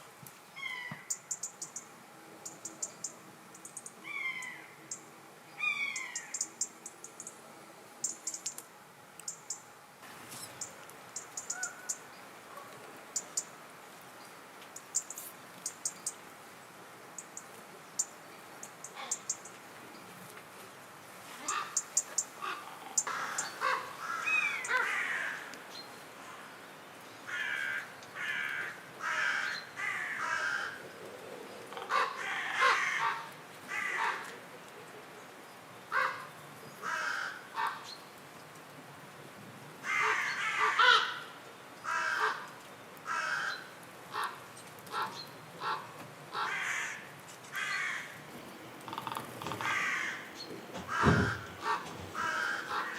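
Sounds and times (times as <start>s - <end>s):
bird short rough calls: 47.6s - 52.9s.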